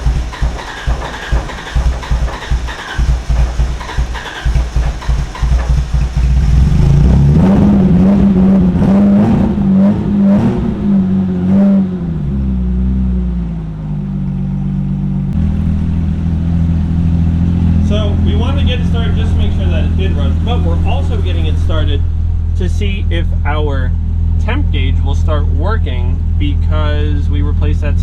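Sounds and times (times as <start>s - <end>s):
engine starting and revving: 0.0s - 13.8s, 15.3s - 28.0s.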